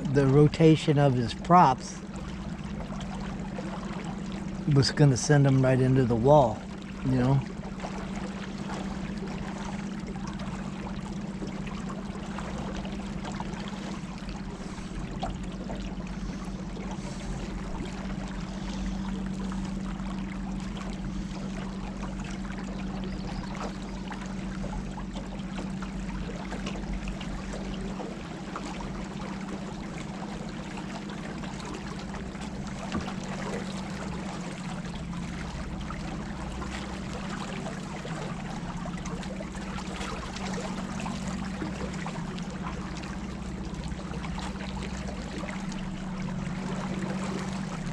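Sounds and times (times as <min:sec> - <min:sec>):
low hum: 0:00.0 - 0:47.9
water rushing around boat: 0:00.0 - 0:47.9.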